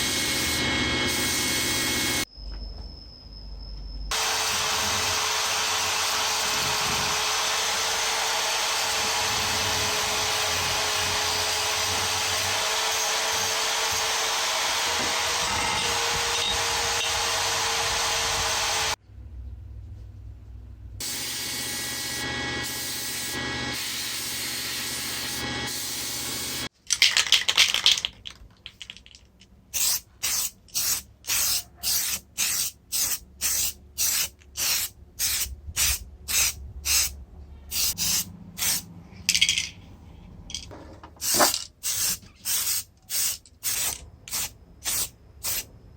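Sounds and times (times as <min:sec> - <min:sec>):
spray paint hissing: 0:22.6 - 0:26.7, 0:29.7 - 0:38.9, 0:41.2 - 0:45.7.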